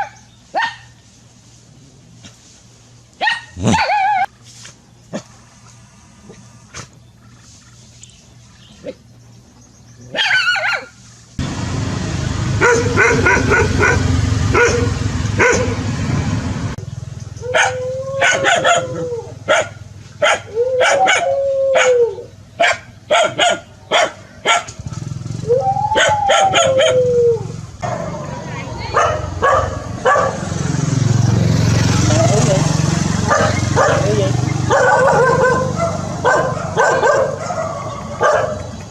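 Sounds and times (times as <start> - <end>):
dog barking: 0.0 - 1.0, 3.2 - 4.3, 10.1 - 11.0, 12.6 - 15.8, 17.5 - 22.0, 22.6 - 24.8, 26.0 - 27.0, 28.9 - 30.5, 33.3 - 38.7
dog yelping: 3.2 - 4.3, 10.1 - 11.0, 12.6 - 15.8, 17.4 - 24.8, 25.4 - 28.2, 28.8 - 30.4, 33.3 - 38.8
low rumbling noise: 11.4 - 22.6
dog howling: 17.4 - 19.5, 20.5 - 22.3, 25.4 - 27.6.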